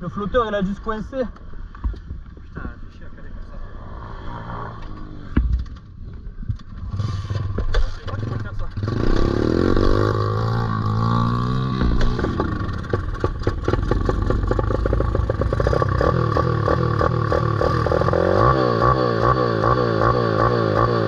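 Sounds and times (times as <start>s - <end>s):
small motorbike engine revving: 8.2s - 21.0s.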